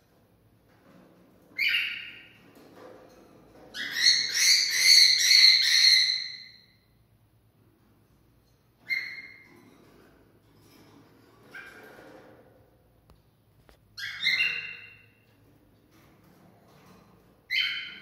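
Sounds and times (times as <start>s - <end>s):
cockatiel calling and whistling: 1.6s - 2.3s, 3.8s - 6.6s, 8.8s - 9.4s, 14.0s - 15.0s, 17.5s - 18.0s.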